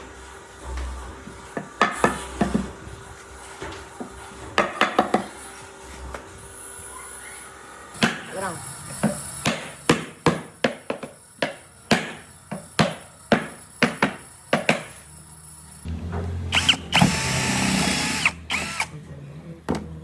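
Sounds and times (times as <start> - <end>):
hammering on wood: 1.6 - 2.7, 4.0 - 5.3, 9.4 - 14.9
power tool humming and whining: 15.8 - 19.0.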